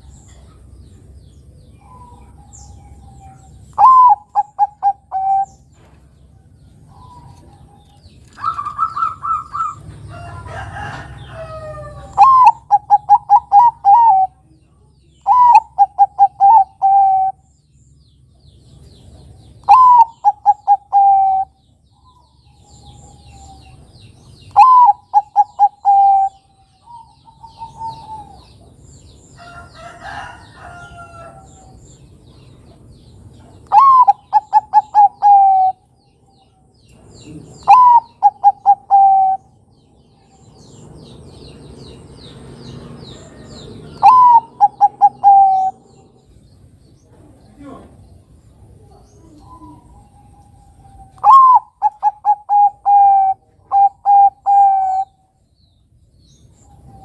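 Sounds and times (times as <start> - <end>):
dove cooing: 1.8 - 5.6, 8.3 - 9.9, 10.5 - 14.4, 15.2 - 17.4, 19.6 - 21.6, 24.5 - 28.6, 33.6 - 35.8, 37.2 - 39.6, 43.9 - 46.1, 48.8 - 55.2
high bird chirps: 19.5 - 29.2, 36.9 - 47.6.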